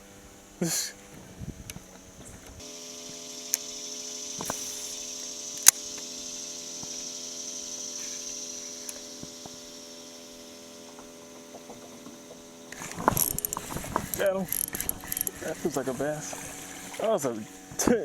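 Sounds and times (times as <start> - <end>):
electric trolling motor humming: 0.0 - 18.0
sharp click: 12.7 - 15.5.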